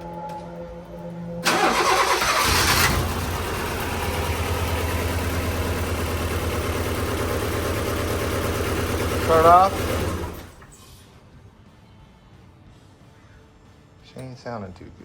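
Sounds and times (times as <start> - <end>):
car engine starting and idling: 1.4 - 10.8.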